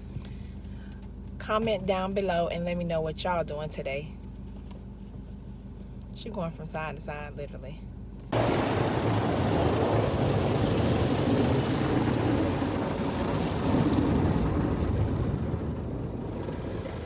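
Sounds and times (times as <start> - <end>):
car wash equipment rushing: 8.4 - 17.0.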